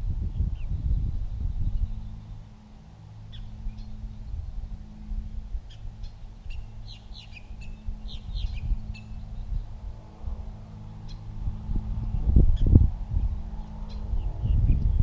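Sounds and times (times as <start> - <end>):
low steady hum: 0.0 - 15.0
high bird chirps: 3.3 - 4.1, 5.7 - 9.6.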